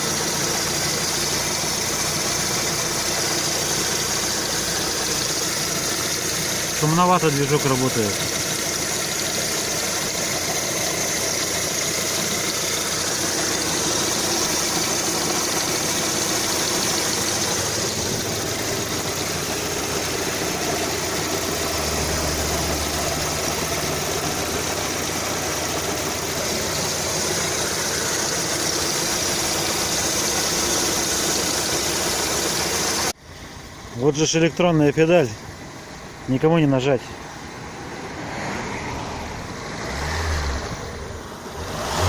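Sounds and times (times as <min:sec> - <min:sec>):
engine knocking: 0:00.0 - 0:33.1
car engine running: 0:00.0 - 0:42.0
road noise: 0:00.0 - 0:42.0.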